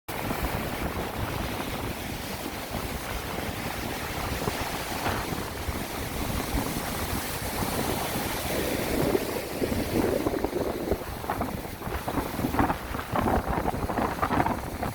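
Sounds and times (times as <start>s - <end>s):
sea surf rushing: 0.1s - 14.9s
wind buffeting microphone: 0.1s - 14.9s.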